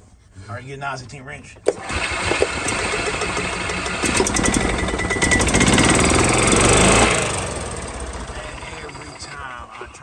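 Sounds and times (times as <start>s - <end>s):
small engine chugging: 1.6s - 9.6s.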